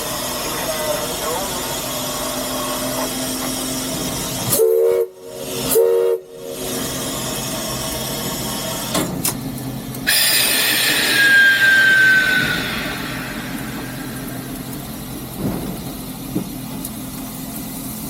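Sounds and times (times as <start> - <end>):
steam whistle blasts: 4.5 - 6.6, 10.1 - 14.3
steam hiss: 10.1 - 16.2.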